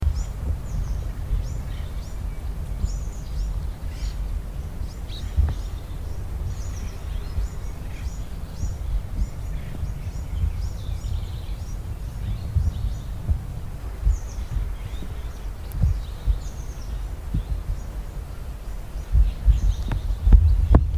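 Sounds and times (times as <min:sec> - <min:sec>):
small birds chirping: 0:00.0 - 0:20.9
steady low rumble: 0:00.0 - 0:20.9.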